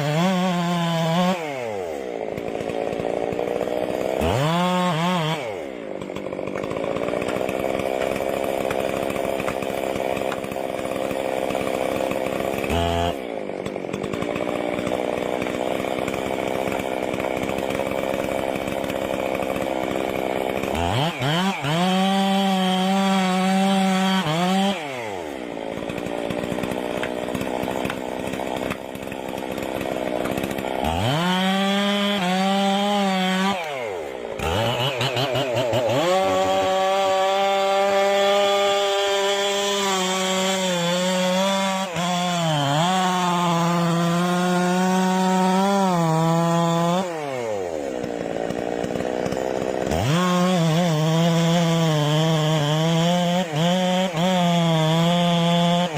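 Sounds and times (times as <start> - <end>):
chainsaw running and revving: 0.0 - 55.9.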